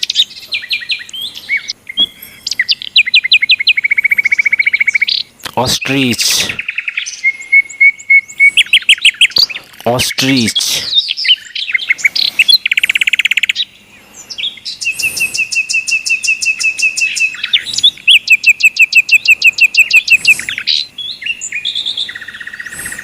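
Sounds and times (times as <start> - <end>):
songbirds chirping and trilling: 0.0 - 23.0.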